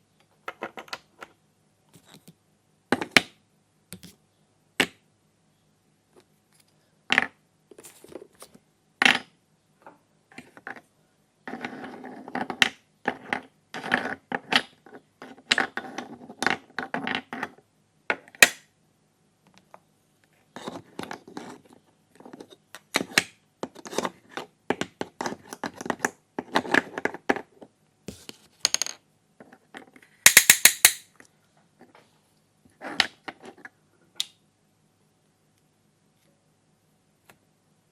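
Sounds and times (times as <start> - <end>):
plastic toy pieces clicking: 30.3 - 31.0.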